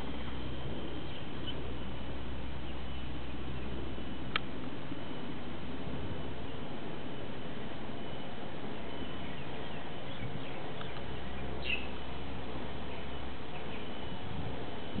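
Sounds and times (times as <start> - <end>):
birds chirping: 0.0 - 4.4, 6.2 - 15.0
steady background hiss: 0.0 - 15.0.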